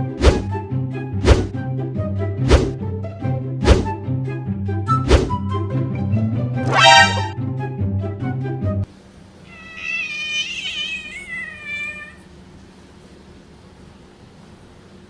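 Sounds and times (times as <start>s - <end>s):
background music: 0.0s - 8.9s
cat meowing: 9.4s - 12.3s.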